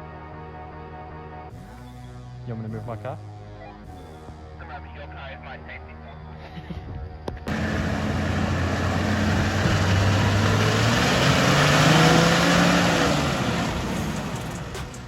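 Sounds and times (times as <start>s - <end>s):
car engine revving under load: 7.5s - 15.0s.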